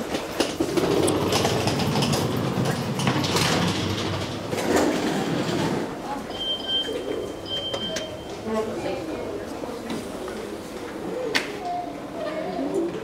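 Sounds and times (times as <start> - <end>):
train wheels rumbling on rails: 0.0 - 6.1.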